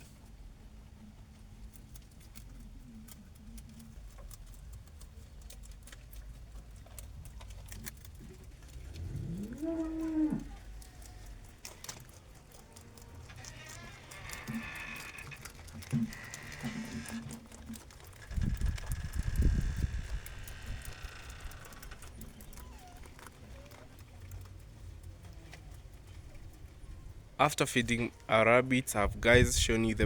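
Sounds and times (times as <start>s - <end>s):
small clicks: 1.7s - 26.7s
cow mooing: 9.0s - 11.6s, 12.6s - 17.4s.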